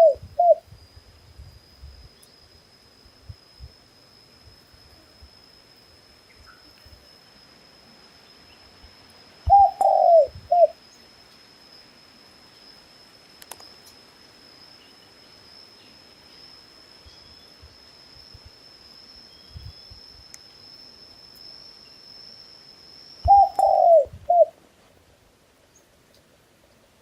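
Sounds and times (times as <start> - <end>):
dove cooing: 0.0 - 0.6, 9.5 - 10.8, 23.2 - 24.6
faint steady high tone: 0.0 - 24.6.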